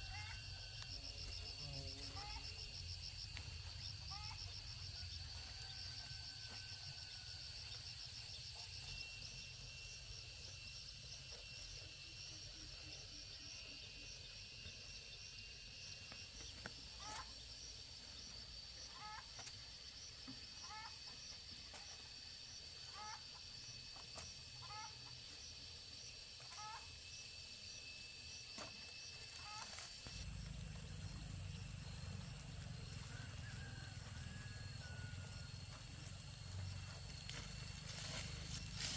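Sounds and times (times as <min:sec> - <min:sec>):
high insect chorus: 0:00.0 - 0:38.9.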